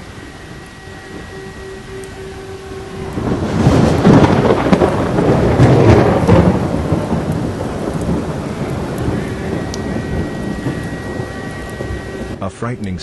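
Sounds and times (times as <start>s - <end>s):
heavy rain: 0.0s - 13.0s
thunder rumbling: 0.0s - 13.0s.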